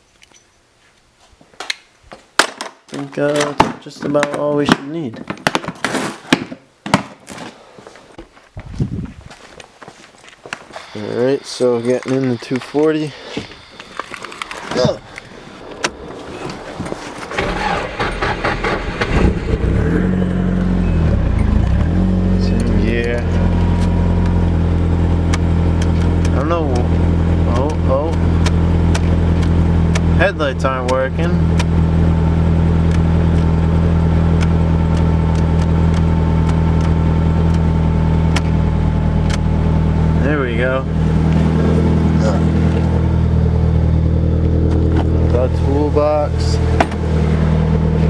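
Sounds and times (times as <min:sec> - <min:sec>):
car engine cranking and starting: 0:10.8 - 0:48.0
starter clicks: 0:25.2 - 0:30.2, 0:34.3 - 0:38.6.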